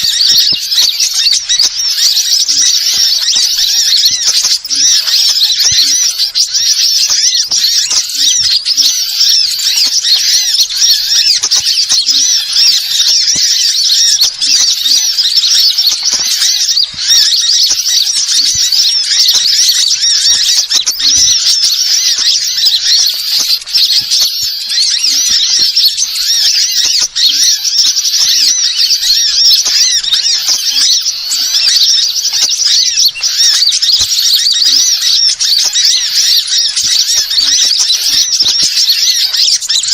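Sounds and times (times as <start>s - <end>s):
birds chirping chorus: 0.0s - 39.9s.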